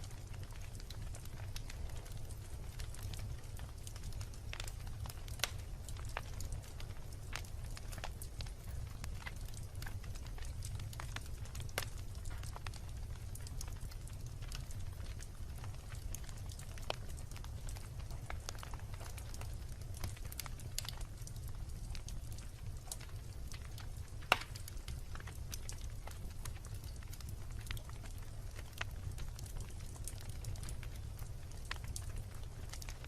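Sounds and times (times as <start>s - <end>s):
bonfire crackling and rumbling: 0.0s - 33.0s.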